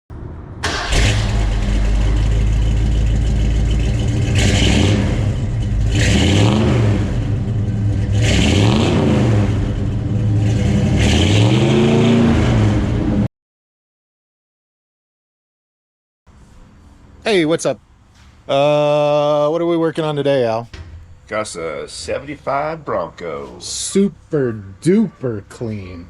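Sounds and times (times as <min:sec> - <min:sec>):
car engine idling and revving: 0:00.1 - 0:13.3.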